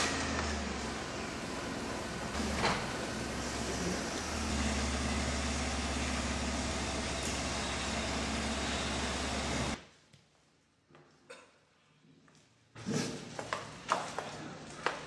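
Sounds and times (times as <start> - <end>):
minivan engine humming: 0.0 - 9.8.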